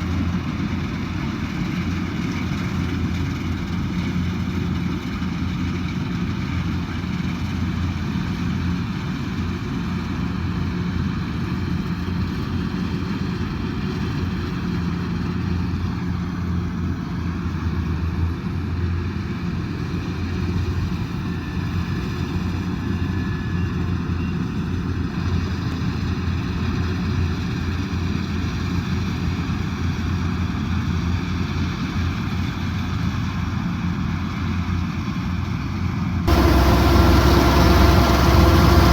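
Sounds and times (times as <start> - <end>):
diesel engine droning: 36.3 - 38.9.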